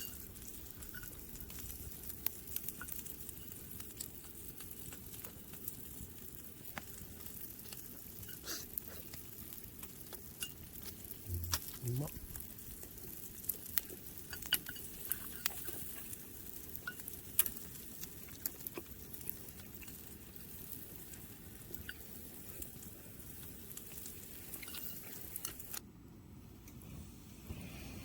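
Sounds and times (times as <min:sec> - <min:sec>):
meat sizzling on a grill: 0:00.0 - 0:25.8
fat popping and spitting: 0:11.2 - 0:12.2.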